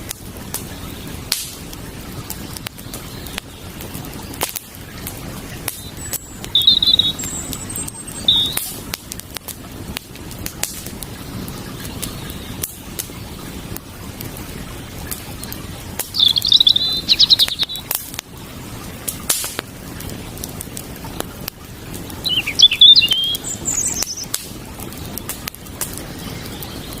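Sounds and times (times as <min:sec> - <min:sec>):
campfire crackling and popping: 0:00.0 - 0:27.0
running water hiss: 0:00.0 - 0:27.0
songbird trilling: 0:05.8 - 0:08.7, 0:16.1 - 0:17.9, 0:22.2 - 0:24.3.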